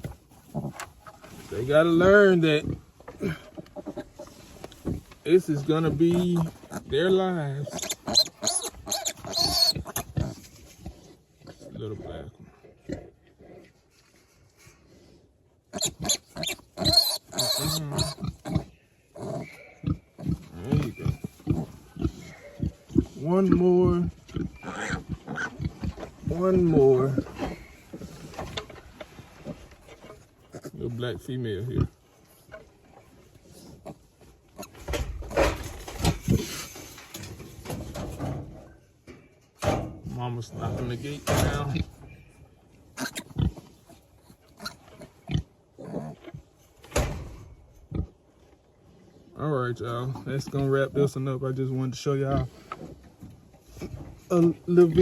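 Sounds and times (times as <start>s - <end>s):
piglet squealing: 7.6s - 10.1s, 15.8s - 19.6s, 24.5s - 25.6s.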